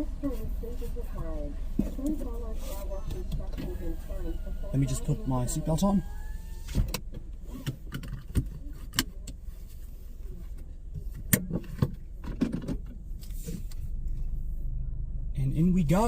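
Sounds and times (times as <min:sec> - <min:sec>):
car engine idling: 0:00.0 - 0:16.0
seatbelt clicking and rattling: 0:06.8 - 0:09.4.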